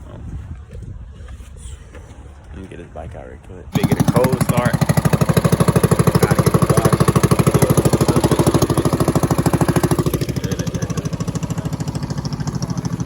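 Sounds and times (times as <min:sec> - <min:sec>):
motorcycle engine idling: 0:03.7 - 0:13.0.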